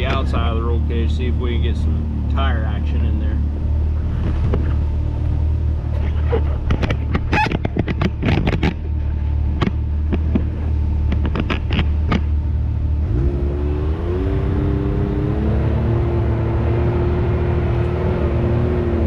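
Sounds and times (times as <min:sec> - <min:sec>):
engine running low and steady: 0:00.0 - 0:19.0
tires and chassis knocking on rocks: 0:04.0 - 0:05.0, 0:05.9 - 0:12.4.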